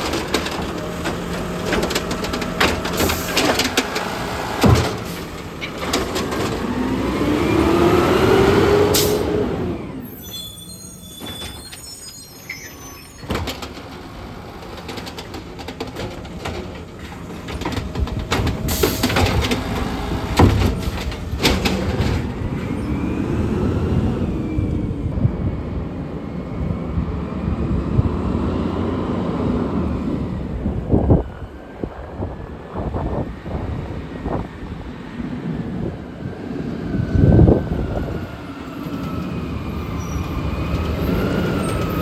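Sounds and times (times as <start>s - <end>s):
knocks and clanks: 0.0s - 6.9s, 13.2s - 22.7s
garbage truck engine running: 0.0s - 26.2s
hydraulic whine: 6.6s - 15.0s.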